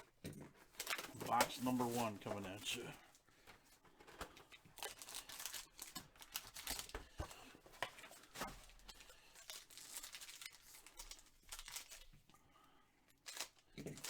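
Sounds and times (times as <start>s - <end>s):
packaging tearing and crinkling: 0.7s - 2.8s, 4.8s - 7.4s, 8.2s - 12.2s, 13.2s - 14.0s.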